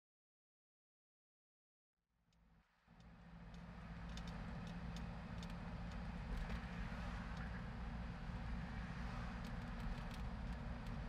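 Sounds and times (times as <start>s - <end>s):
light ticks: 2.3s - 6.7s, 7.3s - 7.6s, 9.4s - 11.0s
car engine and road noise: 2.5s - 11.0s.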